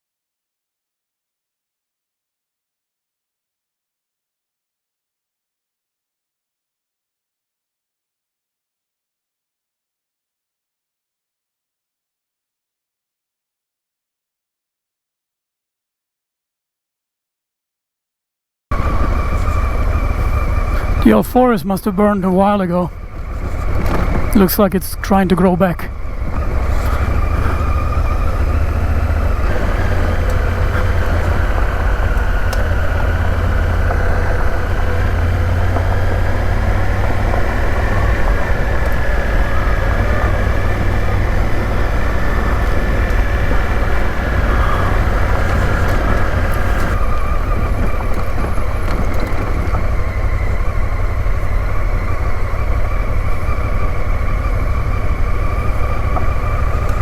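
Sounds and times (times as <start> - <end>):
motorcycle engine running: 18.7 - 57.0
tyres on gravel: 18.7 - 57.0
wind noise: 22.6 - 25.1, 25.8 - 57.0.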